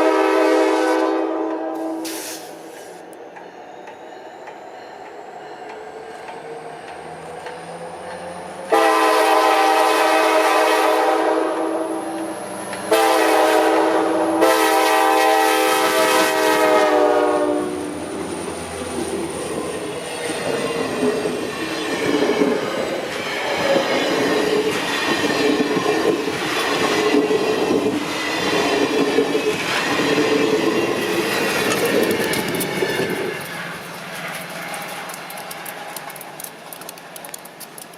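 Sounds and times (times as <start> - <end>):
locomotive air horn blasts: 0.0 - 2.4, 8.7 - 12.1, 12.9 - 17.9
train wheels clattering on rails: 2.0 - 13.5, 16.8 - 37.9.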